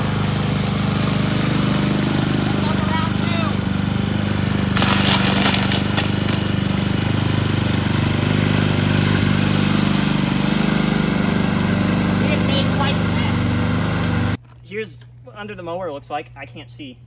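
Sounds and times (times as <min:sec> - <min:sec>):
lawnmower engine running: 0:00.0 - 0:14.6.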